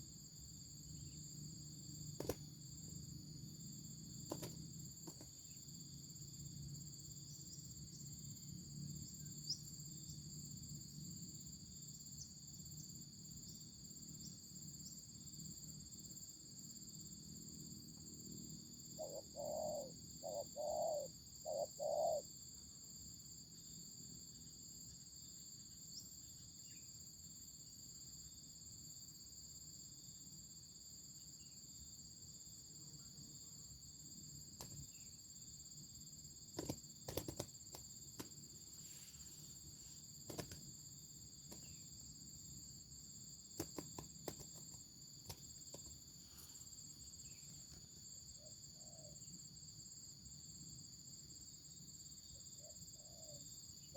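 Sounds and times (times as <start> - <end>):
high drone of insects: 0.0 - 53.9
dove cooing: 19.0 - 22.2
sharp clicks: 36.6 - 38.3, 43.6 - 44.7.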